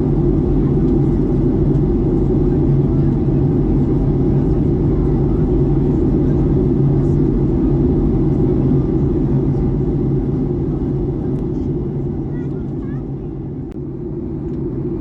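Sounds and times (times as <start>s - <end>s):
airplane cabin roar: 0.0s - 15.0s
low hum: 0.0s - 15.0s.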